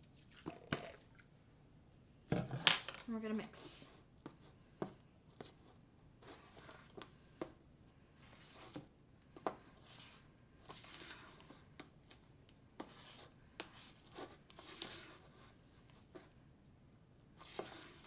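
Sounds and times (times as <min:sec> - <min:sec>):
slime stirring scraping: 0:03.6 - 0:16.5, 0:17.2 - 0:18.0.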